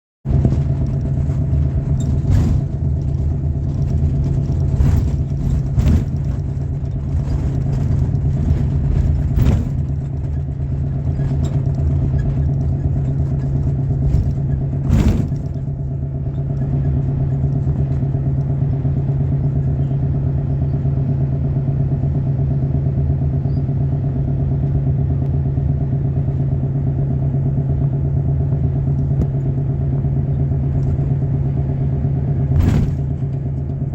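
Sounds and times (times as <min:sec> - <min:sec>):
engine humming steadily: 0:00.2 - 0:33.9
sharp knocks: 0:32.6 - 0:33.3.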